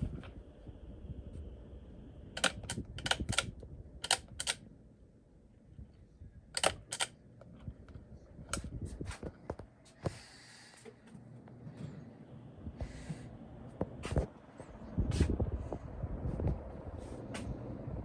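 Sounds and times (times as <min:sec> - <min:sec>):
faint low rumble: 0:00.0 - 0:18.0
sharp clicks: 0:02.4 - 0:04.6, 0:06.6 - 0:07.1.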